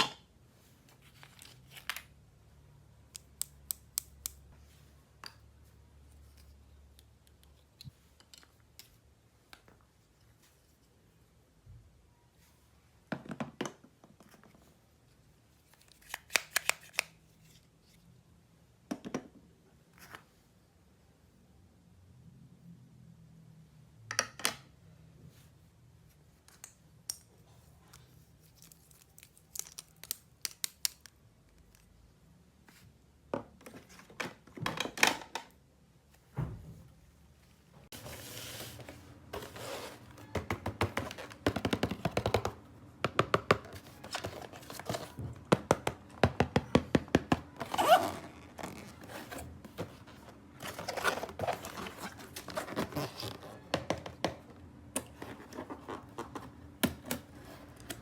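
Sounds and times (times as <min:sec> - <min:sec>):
packaging rustling: 0:47.5 - 0:53.6.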